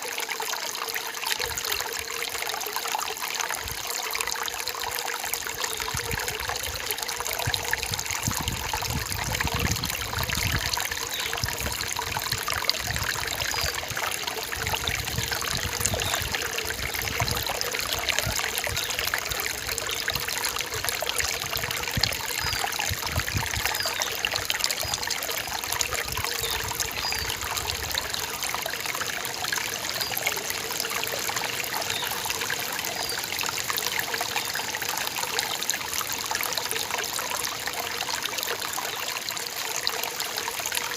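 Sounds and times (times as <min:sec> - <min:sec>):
forest stream trickling: 0:00.0 - 0:40.9.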